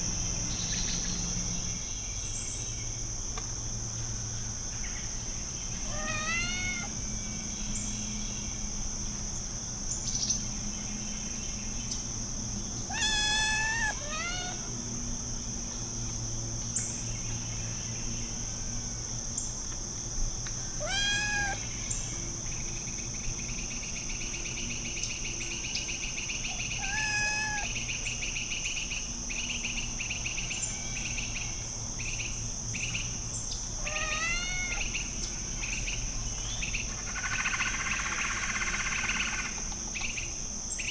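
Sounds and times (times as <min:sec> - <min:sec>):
crickets chirring: 0:00.0 - 0:40.9
kitten meowing: 0:05.9 - 0:06.9, 0:12.9 - 0:14.7, 0:20.8 - 0:21.7, 0:26.8 - 0:27.7, 0:33.8 - 0:34.9.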